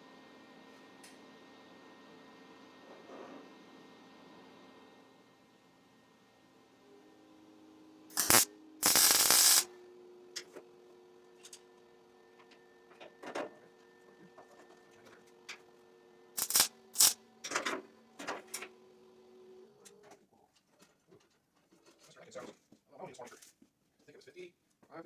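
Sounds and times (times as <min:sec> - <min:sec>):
welding crackling burst: 0:08.1 - 0:09.7, 0:16.4 - 0:17.2.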